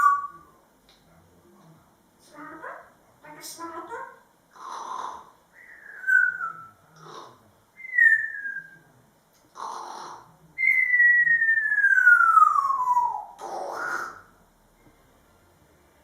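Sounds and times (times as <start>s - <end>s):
parrot whistling: 5.6s - 6.8s, 7.8s - 8.8s, 10.6s - 14.3s.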